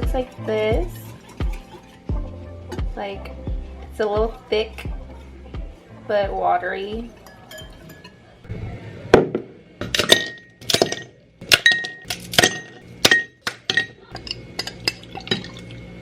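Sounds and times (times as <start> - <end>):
glass clinking: 7.1 - 8.4, 9.8 - 15.8.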